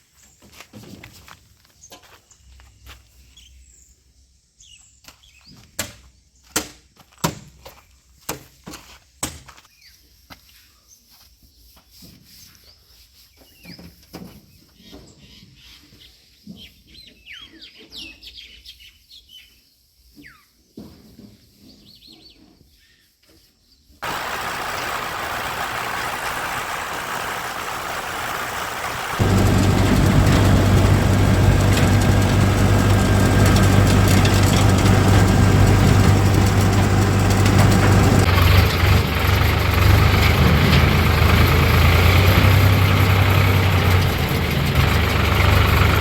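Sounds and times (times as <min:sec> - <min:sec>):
birds chirping: 0:24.0 - 0:39.1.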